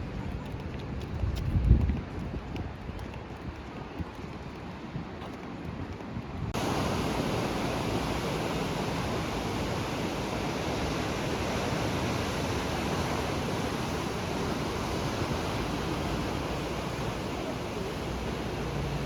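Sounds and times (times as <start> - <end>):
wind hiss: 6.5 - 19.0
ocean surf washing onto beach: 6.6 - 19.0.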